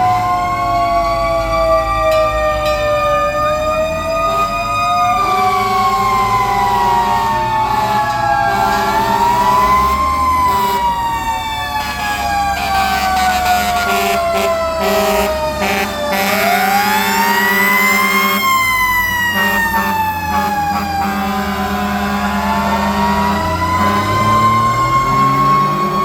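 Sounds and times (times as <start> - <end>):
fire truck siren wailing: 0.0 - 26.0.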